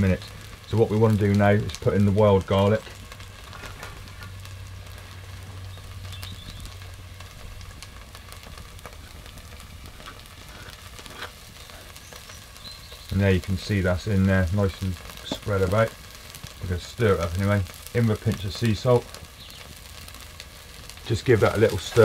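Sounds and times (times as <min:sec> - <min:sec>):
potatoes sizzling in a pot: 0:00.0 - 0:22.0.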